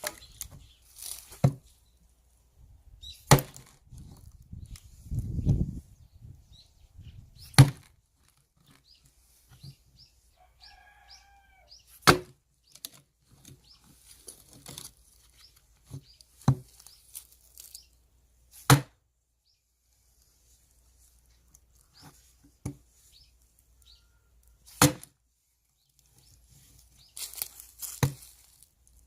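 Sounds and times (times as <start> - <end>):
axe chopping firewood: 1.2 - 1.7, 3.2 - 3.8, 7.5 - 8.0, 11.9 - 12.4, 15.9 - 16.8, 18.6 - 19.0, 24.6 - 25.2, 27.9 - 28.3.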